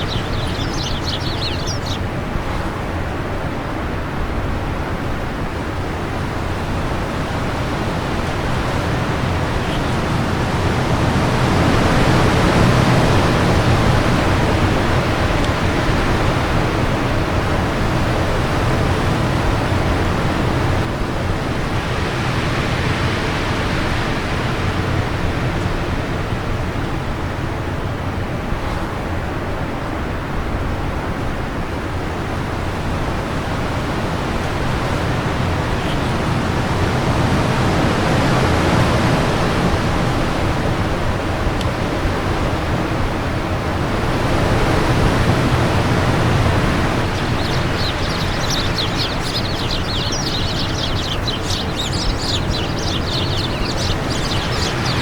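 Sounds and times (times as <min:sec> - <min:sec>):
bird chirps: 0:00.0 - 0:02.1, 0:46.4 - 0:55.0
wind blowing: 0:00.0 - 0:26.1, 0:32.6 - 0:55.0.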